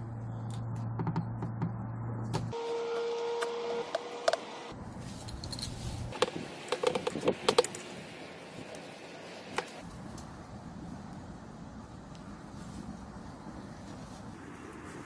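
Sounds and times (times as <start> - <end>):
hand tools clicking and tapping: 5.3 - 7.9.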